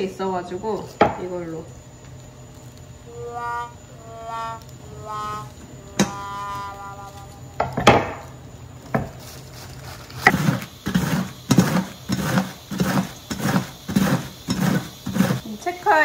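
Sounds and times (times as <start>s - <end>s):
cabbage shredded on mandoline slicer: 10.3s - 15.5s.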